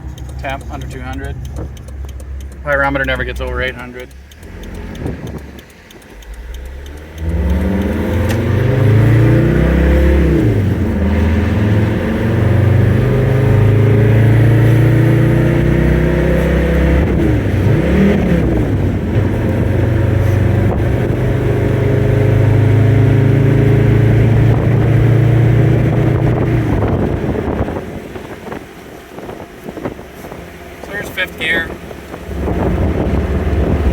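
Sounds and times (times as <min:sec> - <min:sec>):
diesel engine accelerating: 0:00.0 - 0:33.9.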